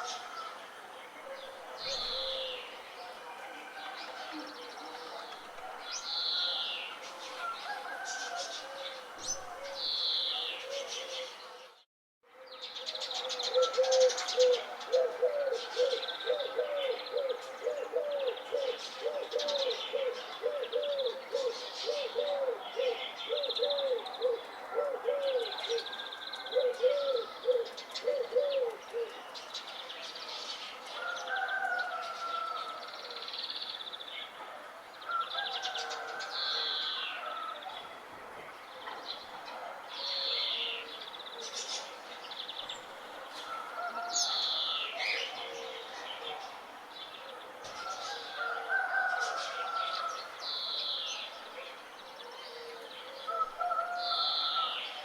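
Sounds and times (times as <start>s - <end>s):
birds chirping and calling: 1.2s - 3.2s, 12.5s - 34.4s.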